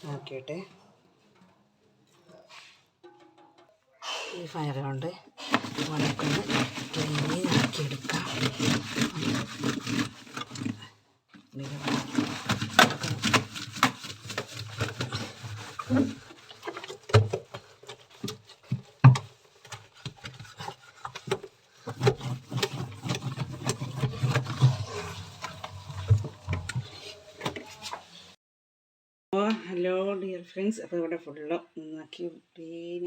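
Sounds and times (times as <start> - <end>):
cloth wiping plastic: 11.6 - 18.8, 19.4 - 28.4.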